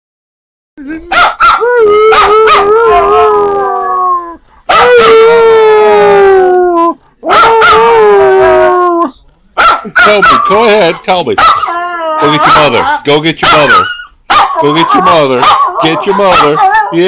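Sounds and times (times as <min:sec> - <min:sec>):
dog howling: 0:01.0 - 0:09.2, 0:11.4 - 0:12.8, 0:13.5 - 0:17.0.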